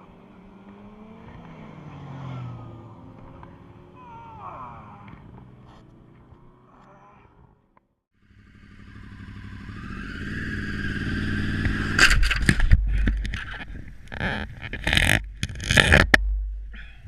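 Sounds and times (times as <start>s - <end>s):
motorcycle engine running: 8.2s - 13.5s.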